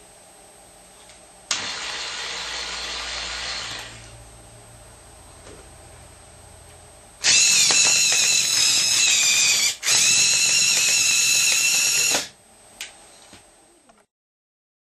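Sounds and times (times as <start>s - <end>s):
small electric motors whining: 1.5s - 4.1s, 7.2s - 12.3s.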